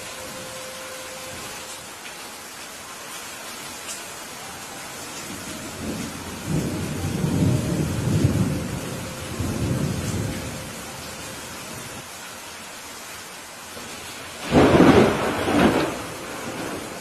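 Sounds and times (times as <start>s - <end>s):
steady rain hissing: 0.0s - 17.0s
thunder rumbling: 5.2s - 12.0s, 14.4s - 17.0s.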